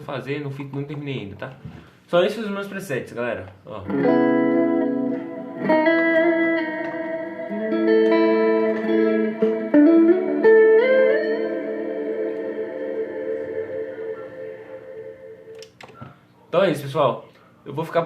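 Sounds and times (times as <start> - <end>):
electric guitar chords and notes: 3.8 - 15.9.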